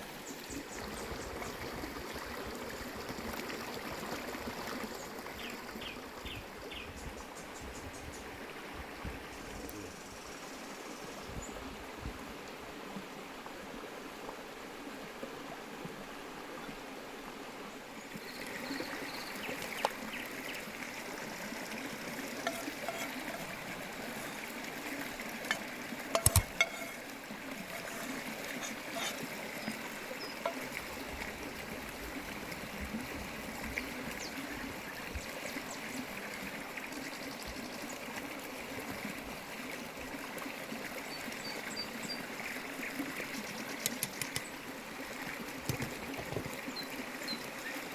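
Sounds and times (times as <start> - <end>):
trickling running water: 18.1 - 47.9.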